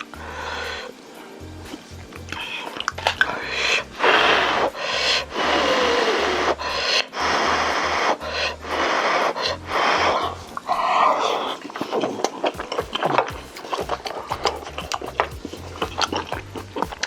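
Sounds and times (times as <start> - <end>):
wet chewing and slurping: 10.1 - 17.0.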